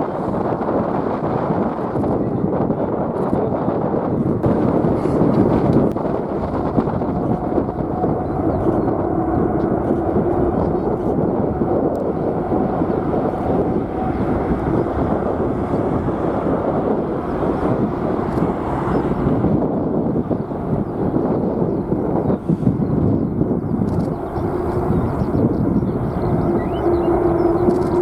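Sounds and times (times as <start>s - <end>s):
jet engines at takeoff: 0.0s - 28.0s
wind buffeting microphone: 0.0s - 28.0s.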